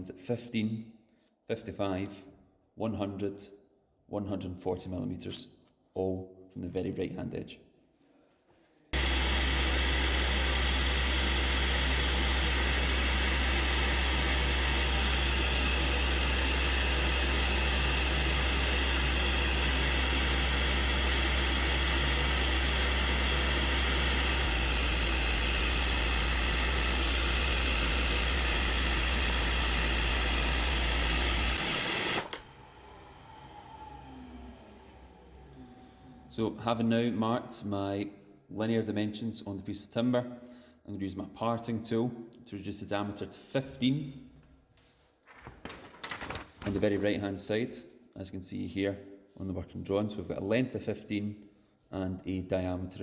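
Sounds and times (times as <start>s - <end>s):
wood lathe humming and whirring: 9.0s - 36.6s.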